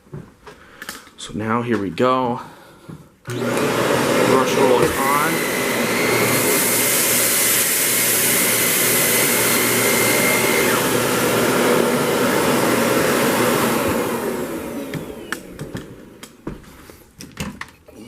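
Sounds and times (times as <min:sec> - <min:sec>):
vacuum cleaner running: 0:03.2 - 0:17.0.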